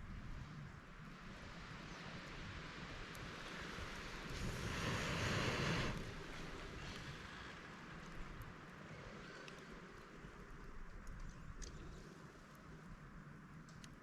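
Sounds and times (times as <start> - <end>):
windy hiss: 0.0 - 14.0
rush of air: 4.0 - 7.5.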